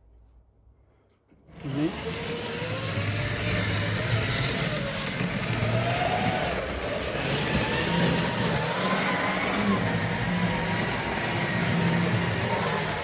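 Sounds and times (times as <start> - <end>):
model train motor whining: 1.5 - 13.0
wheels rumbling on rail: 3.2 - 13.0.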